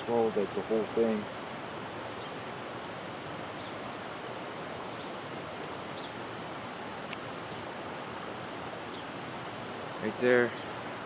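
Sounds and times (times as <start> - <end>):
creek water running: 0.0 - 11.0
sharp click: 7.1 - 7.3.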